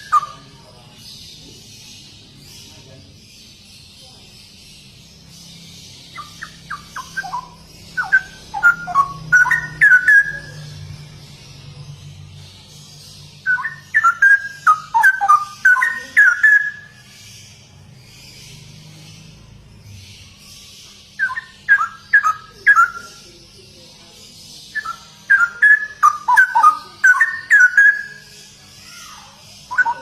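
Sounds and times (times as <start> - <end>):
bird singing whistled phrases: 0.0 - 0.5, 6.1 - 10.8, 13.4 - 17.0, 21.2 - 23.2, 24.7 - 30.0.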